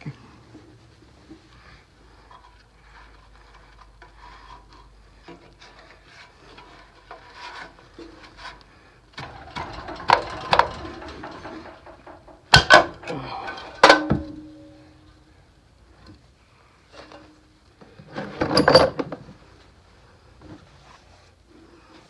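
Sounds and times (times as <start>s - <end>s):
tools scraping and clicking on engine: 2.3s - 14.6s.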